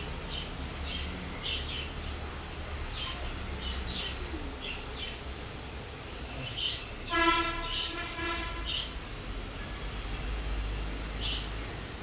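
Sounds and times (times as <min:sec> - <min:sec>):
small birds chirping: 0:00.0 - 0:12.0
horn tone: 0:07.1 - 0:08.7.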